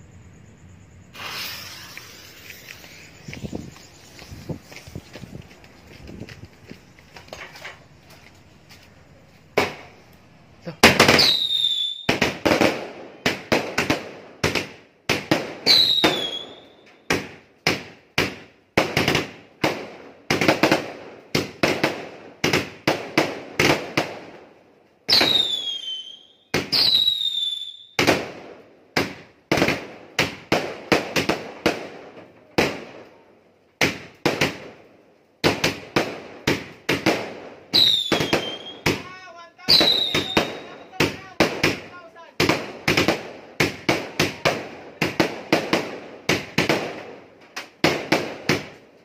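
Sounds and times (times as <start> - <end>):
fireworks whistle: 0.0 - 8.1, 9.5 - 13.7, 15.6 - 17.2, 25.1 - 28.2, 37.7 - 42.2
fireworks launch pops and bursts: 1.0 - 49.0.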